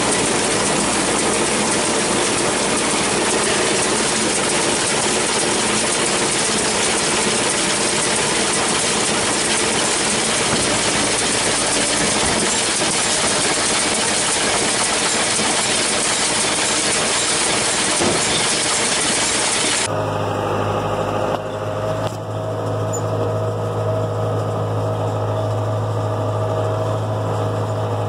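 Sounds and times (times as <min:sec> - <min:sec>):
baler mechanical clatter: 0:00.0 - 0:19.9
diesel tractor running: 0:00.0 - 0:28.0.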